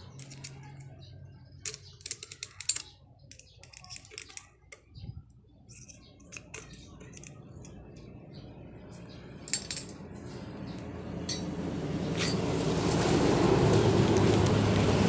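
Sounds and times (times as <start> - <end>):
metal tools clinking: 0.0 - 1.0, 1.6 - 4.5, 5.7 - 7.8, 9.4 - 10.0, 11.2 - 11.5, 12.1 - 12.5
vehicle engine rumble: 0.0 - 15.0.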